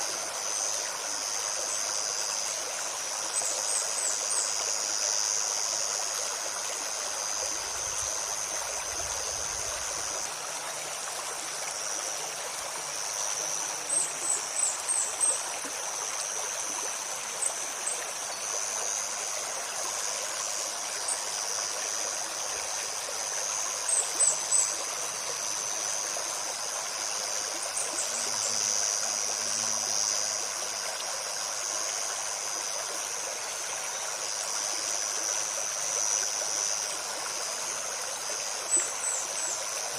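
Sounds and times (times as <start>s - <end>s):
high insect drone: 0.0s - 39.9s
stream babbling: 0.0s - 39.9s.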